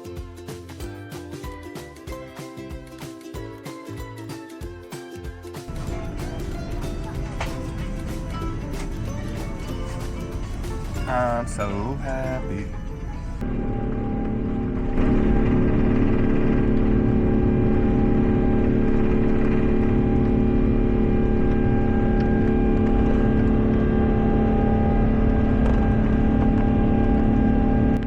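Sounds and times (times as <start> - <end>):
jet engine drone in cabin: 5.7 - 28.0.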